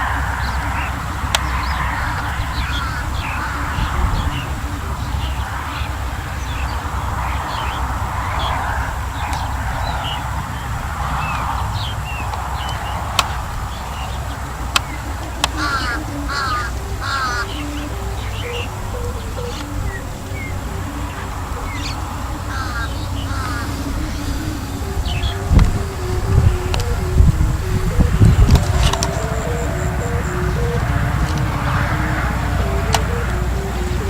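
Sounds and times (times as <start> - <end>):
birds chirping: 0.0 - 34.0
rapid warbling bird calls: 0.0 - 34.0
wind buffeting microphone: 0.0 - 34.0
sharp clicks: 12.2 - 34.0.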